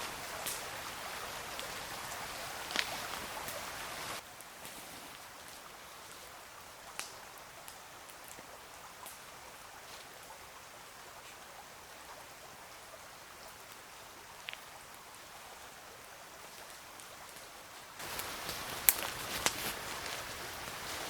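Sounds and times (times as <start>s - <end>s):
water hissing: 0.0s - 5.2s
sharp clicks and crackles: 16.6s - 20.2s.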